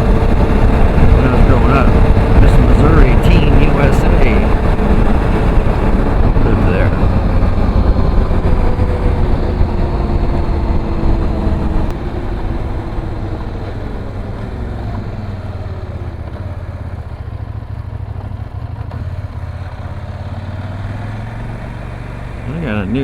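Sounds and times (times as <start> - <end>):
wind rush: 0.0 - 15.9
motorcycle engine running: 0.0 - 23.0.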